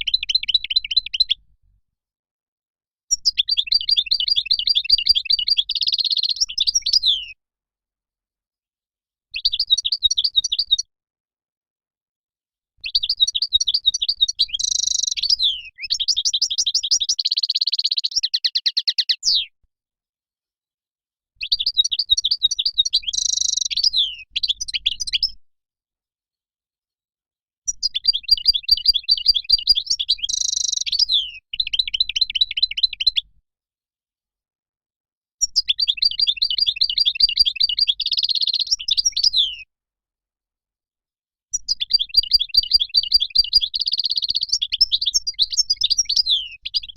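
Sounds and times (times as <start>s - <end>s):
goldfinch twittering song: 3.1s - 7.4s, 12.8s - 19.4s, 21.4s - 25.4s, 27.7s - 33.2s, 35.4s - 39.7s, 41.6s - 46.9s.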